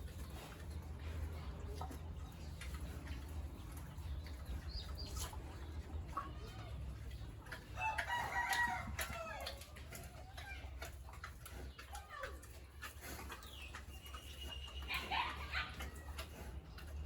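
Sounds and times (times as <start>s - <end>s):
rooster crowing: 7.8s - 9.5s.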